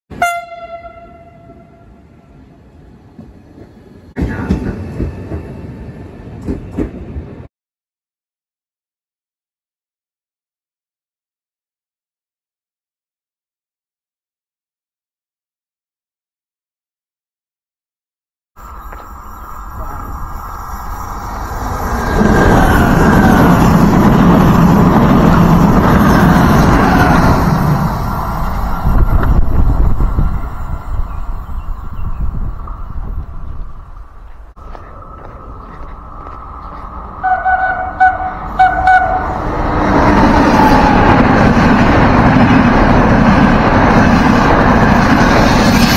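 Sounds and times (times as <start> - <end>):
train rumble: 0.1 - 7.5, 18.6 - 45.9
electric train running in: 18.6 - 45.9
gusty wind buffeting: 19.4 - 45.9.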